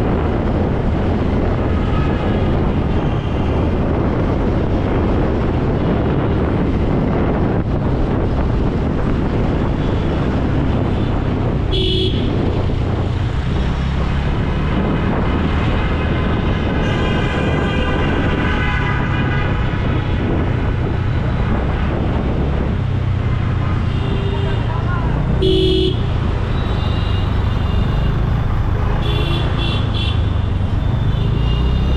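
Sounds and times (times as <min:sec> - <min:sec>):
motorcycle running: 0:00.0 - 0:16.8, 0:17.4 - 0:31.9
road traffic: 0:00.0 - 0:31.9
vehicle horn honk: 0:11.7 - 0:12.4, 0:23.8 - 0:24.7, 0:25.4 - 0:28.0, 0:28.8 - 0:30.3.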